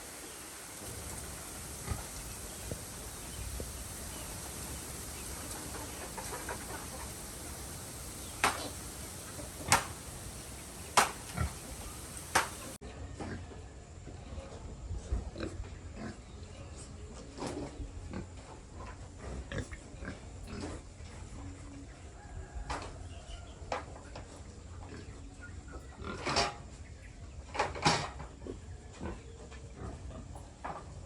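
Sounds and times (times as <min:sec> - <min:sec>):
steady hiss: 0:00.0 - 0:12.8
pigs grunting: 0:11.1 - 0:12.0.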